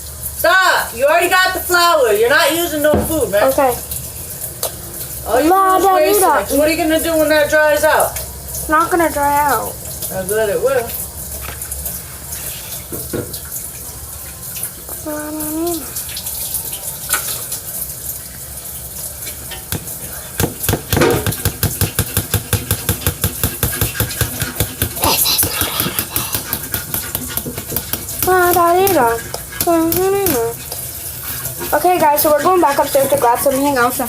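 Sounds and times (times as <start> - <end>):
water running from a tap: 0.0 - 34.0
slime stirred in a bowl: 20.6 - 34.0.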